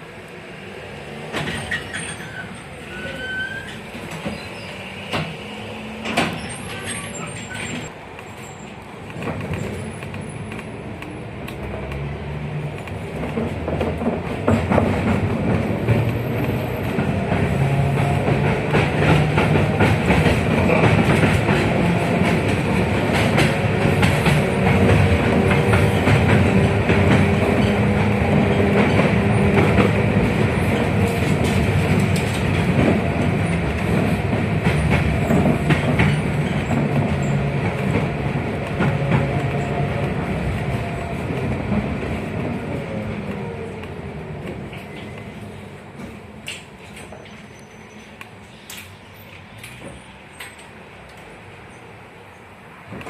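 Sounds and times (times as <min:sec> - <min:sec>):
tram traction hum: 0:00.0 - 0:53.0
wheels rumbling on rails: 0:00.0 - 0:53.0
brief squeal: 0:01.6 - 0:05.2, 0:06.3 - 0:08.7, 0:47.1 - 0:48.7.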